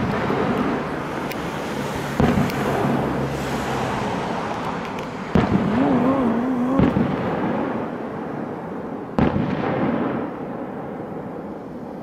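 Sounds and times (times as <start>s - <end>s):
distant firework booms: 5.3s - 8.3s, 9.1s - 11.3s.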